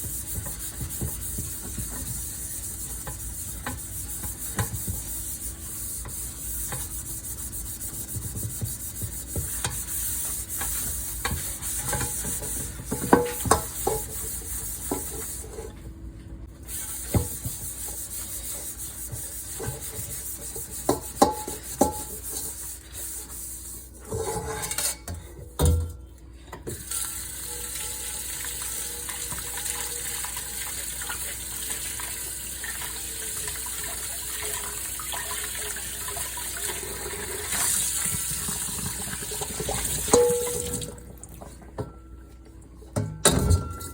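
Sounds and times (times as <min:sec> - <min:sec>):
dishware clinking and knocking: 0:43.0 - 0:43.9.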